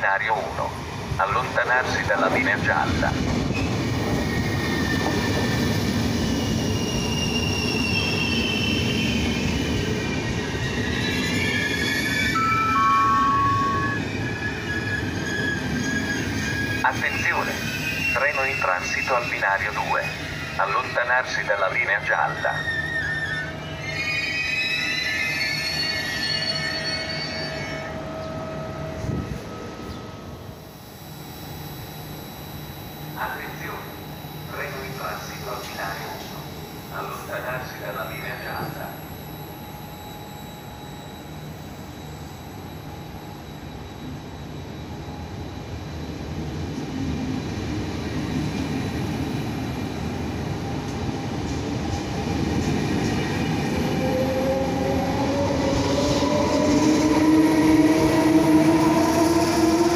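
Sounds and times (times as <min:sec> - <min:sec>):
train wheels rumbling on rails: 0:00.0 - 0:12.3
low train rumble: 0:00.0 - 0:59.9
high squeal of brakes: 0:03.5 - 0:19.3, 0:22.2 - 0:30.2.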